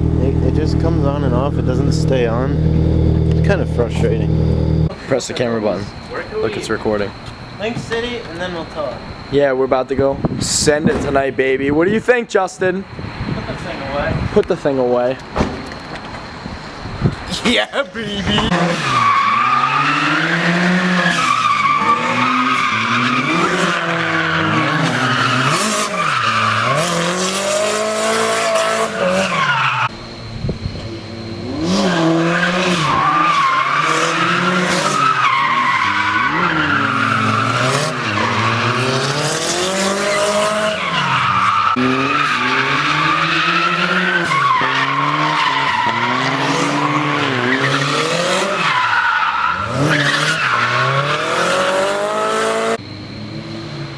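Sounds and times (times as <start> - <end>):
car engine revving: 0.0 - 7.6, 18.2 - 53.9
tyres squealing: 0.0 - 9.4, 16.2 - 30.0, 30.9 - 52.8.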